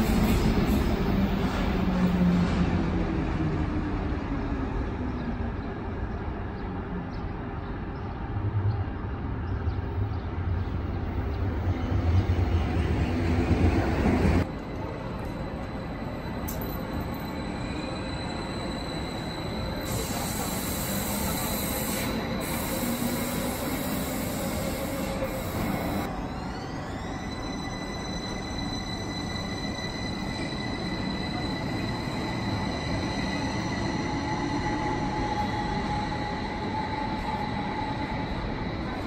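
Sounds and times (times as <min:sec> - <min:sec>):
electric trains rolling rumble: 0:00.0 - 0:39.0
train motor whine: 0:17.4 - 0:39.0.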